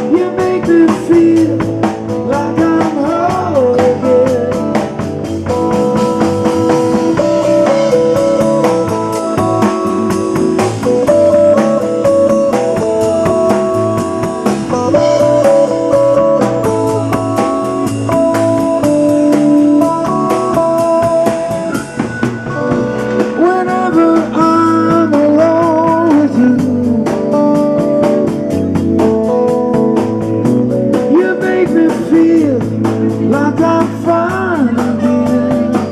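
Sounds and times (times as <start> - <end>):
lead guitar line bending pitch: 0.0 - 35.9
live band playing slow love song: 0.0 - 35.9.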